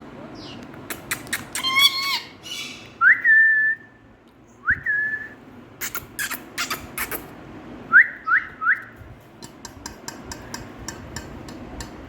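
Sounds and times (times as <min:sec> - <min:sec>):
parakeet chattering call: 0:05.8 - 0:07.3.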